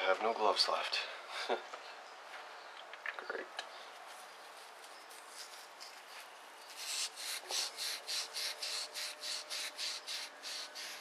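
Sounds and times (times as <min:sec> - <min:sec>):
rapid scrubbing strokes: 0:06.7 - 0:11.0.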